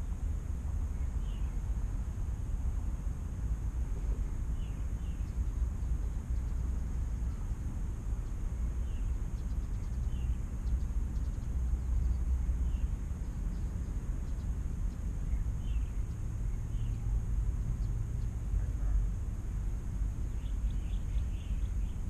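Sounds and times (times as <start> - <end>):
faint bird chirps: 0.9 - 1.6, 4.0 - 19.1, 20.2 - 22.0.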